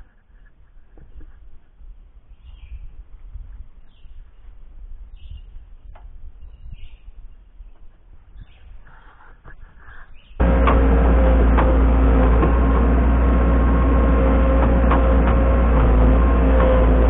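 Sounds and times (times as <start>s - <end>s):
heavy machine engine running: 10.4s - 17.0s.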